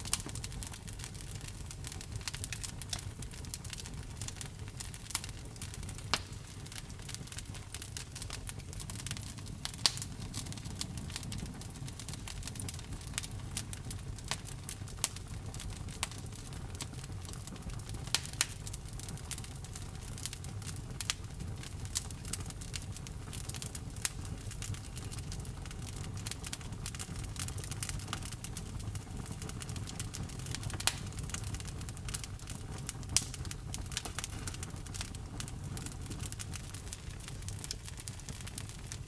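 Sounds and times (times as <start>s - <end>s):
wood fire crackling: 0.0s - 39.0s.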